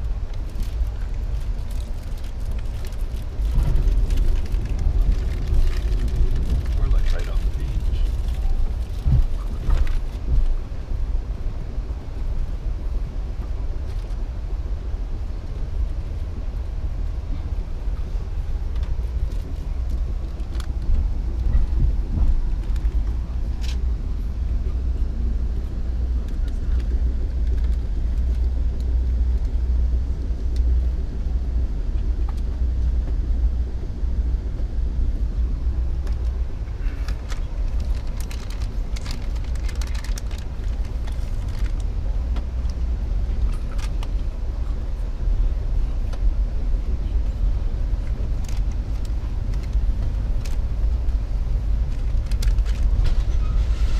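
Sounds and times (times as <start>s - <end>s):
train rumbling on board: 0.0s - 53.9s.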